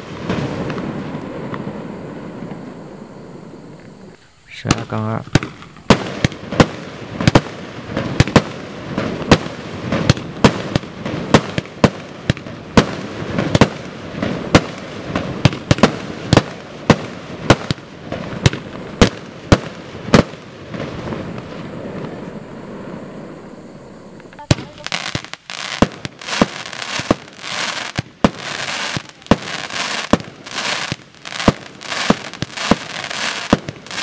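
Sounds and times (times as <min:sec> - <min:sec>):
firework rushing noise: 0:00.0 - 0:34.0
firework shots banging: 0:04.6 - 0:22.1, 0:24.3 - 0:34.0.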